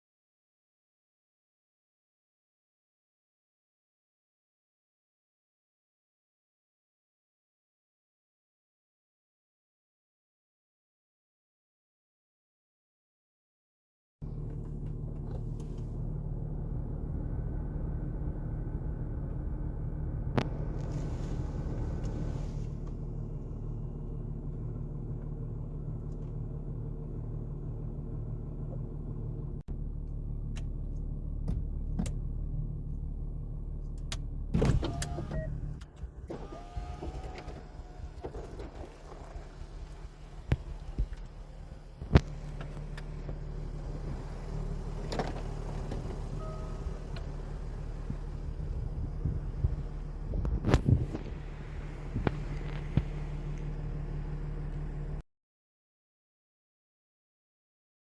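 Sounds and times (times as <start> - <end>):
car engine idling: 14.2 - 55.2.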